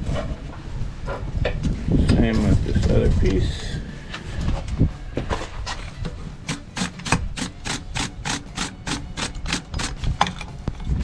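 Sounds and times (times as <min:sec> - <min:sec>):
wire brush scrubbing metal: 0:05.8 - 0:10.1.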